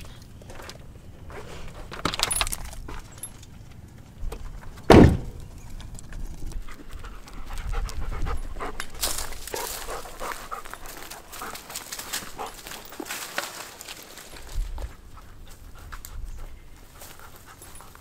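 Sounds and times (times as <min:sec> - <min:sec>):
loud sudden bump: 0:04.9 - 0:05.4
dog panting: 0:06.6 - 0:13.1, 0:14.8 - 0:18.0.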